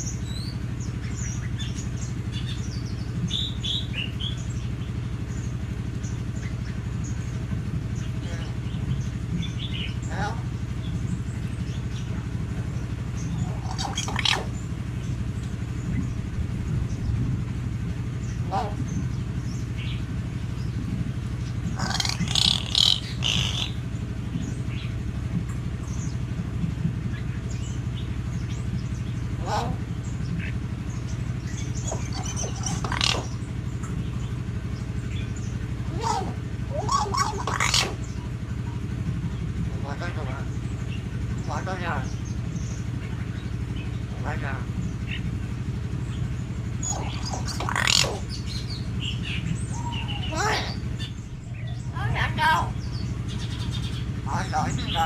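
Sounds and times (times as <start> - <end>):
birds chirping and whistling: 0.0 - 55.0
low pulsing hum: 0.0 - 55.0
myna harsh call: 21.8 - 23.8, 35.9 - 38.0.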